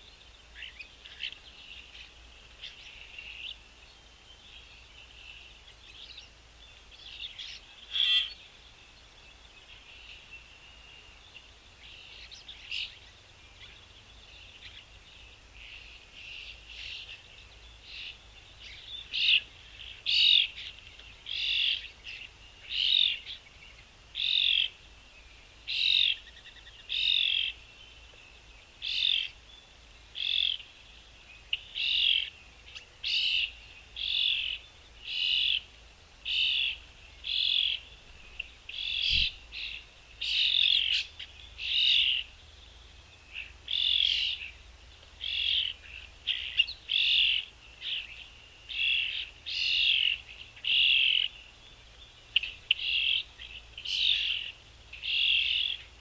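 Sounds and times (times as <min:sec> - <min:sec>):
bird calling: 0:07.0 - 0:08.7, 0:09.7 - 0:24.8, 0:31.4 - 0:56.0.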